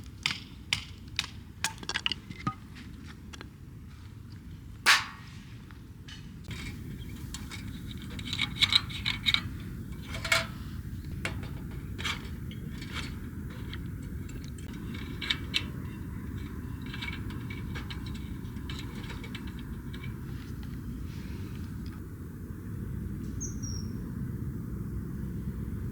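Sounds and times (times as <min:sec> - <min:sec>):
low background rumble: 0:06.4 - 0:25.9.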